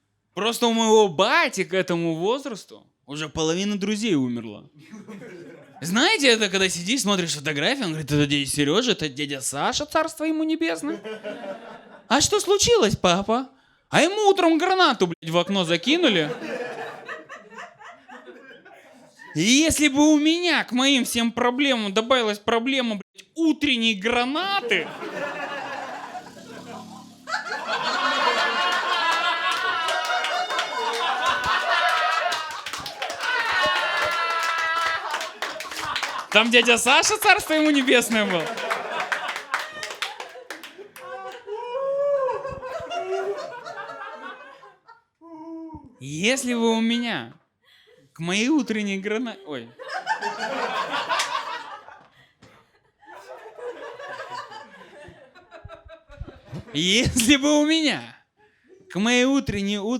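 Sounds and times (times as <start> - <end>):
audience laughter: 4.8 - 5.8, 10.9 - 12.1, 16.2 - 19.4, 24.6 - 41.7, 42.3 - 45.0, 49.7 - 57.2
people clapping: 28.0 - 41.6, 50.7 - 52.2.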